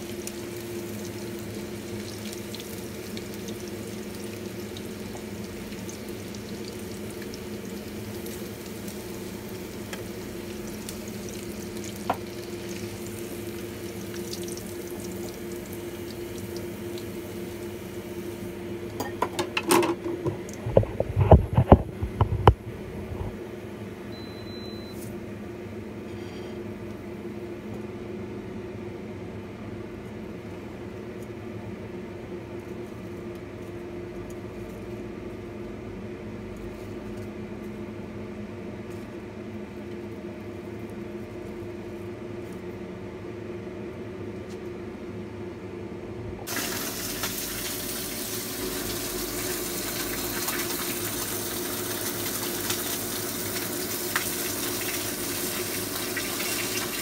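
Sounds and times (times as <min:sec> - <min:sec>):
food sizzling in oil: 0:00.0 - 0:18.6, 0:46.5 - 0:57.0.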